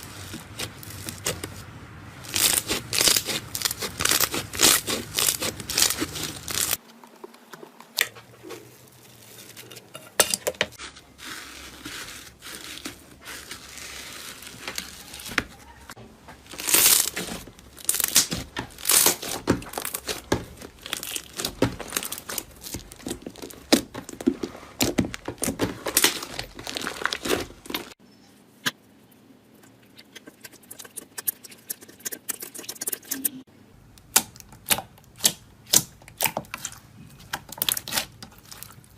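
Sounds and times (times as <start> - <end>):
slime squeezed crackling and popping: 2.2 - 6.8, 16.5 - 24.2, 24.8 - 27.9, 37.4 - 38.9.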